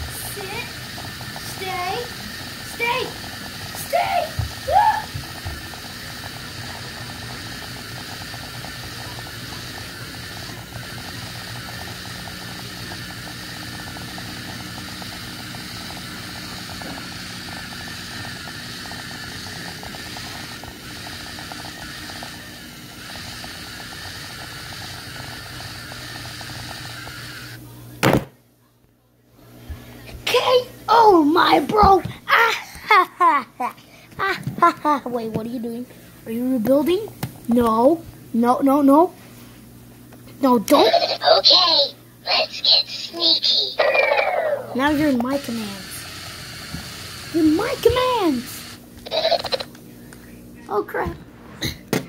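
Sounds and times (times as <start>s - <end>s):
small electric motors whirring: 0.0s - 27.6s, 40.5s - 49.8s.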